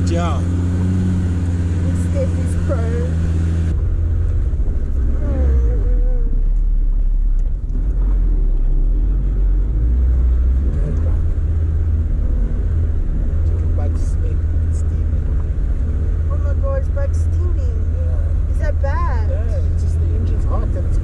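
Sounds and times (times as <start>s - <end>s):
truck engine droning: 0.0s - 21.0s.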